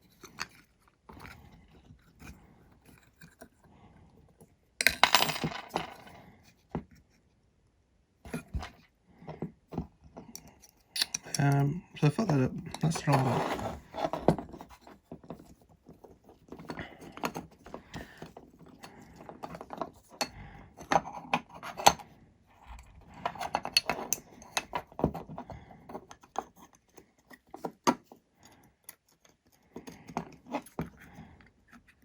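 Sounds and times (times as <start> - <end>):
tools and hardware clicking and rattling: 4.8 - 6.2, 10.3 - 22.0, 22.8 - 25.3.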